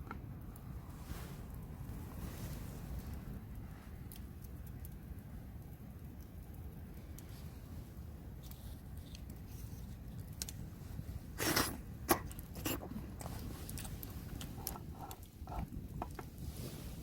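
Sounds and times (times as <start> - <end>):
low steady rumble: 0.0 - 17.0
eating slurp: 11.4 - 11.8, 12.5 - 13.9.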